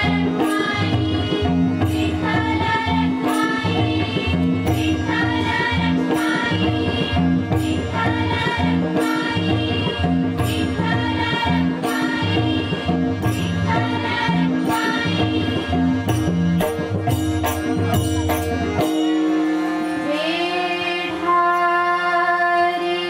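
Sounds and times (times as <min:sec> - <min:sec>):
group singing devotional song: 0:00.0 - 0:07.2, 0:07.9 - 0:13.0, 0:13.6 - 0:15.7
steady percussion beat: 0:00.0 - 0:19.8
sustained accompaniment: 0:00.0 - 0:23.0.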